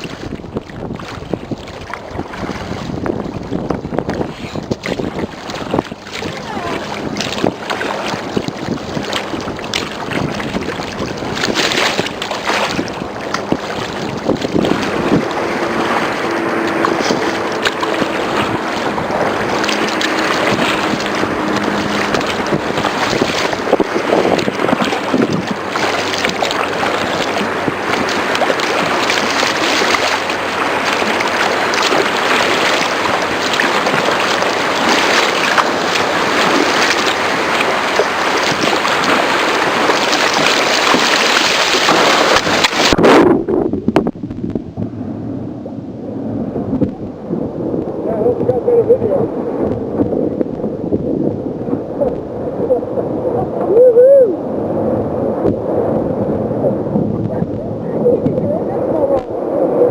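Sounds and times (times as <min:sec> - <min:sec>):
waves washing on beach: 0:00.0 - 0:43.9, 0:44.6 - 0:59.9
wind buffeting microphone: 0:00.0 - 0:59.9.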